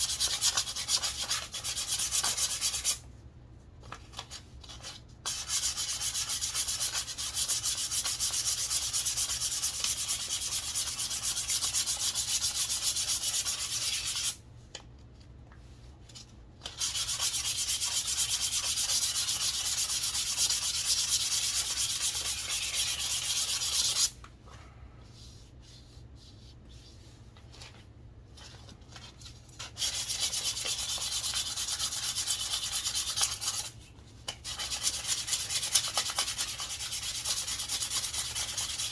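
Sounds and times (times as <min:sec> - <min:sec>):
sandpaper rasping on wood: 0:05.3 - 0:14.4, 0:16.8 - 0:24.1, 0:29.8 - 0:33.7, 0:34.5 - 0:38.9.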